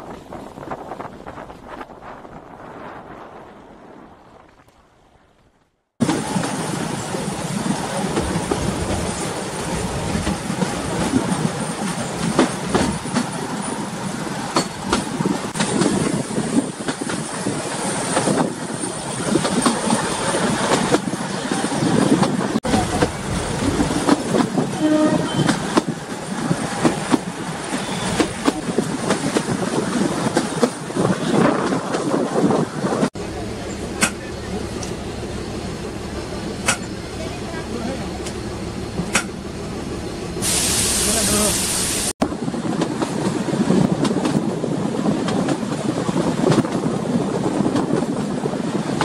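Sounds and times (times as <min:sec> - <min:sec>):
train wheels clattering over rail joints: 0:09.9 - 0:13.5, 0:14.5 - 0:24.7, 0:25.3 - 0:32.2, 0:36.6 - 0:37.0, 0:39.0 - 0:39.4
train horn: 0:24.7 - 0:25.6.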